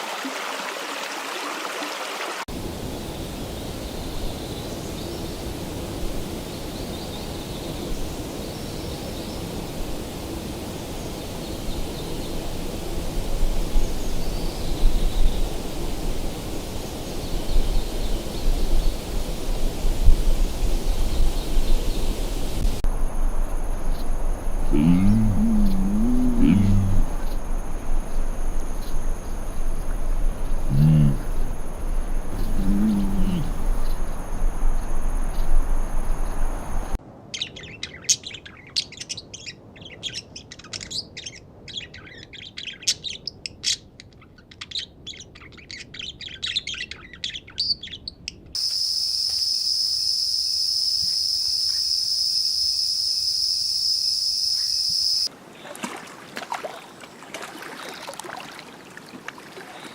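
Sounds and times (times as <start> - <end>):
low animal calls: 24.6 - 27.4, 30.5 - 33.9
high-pitched insect drone: 48.6 - 55.3.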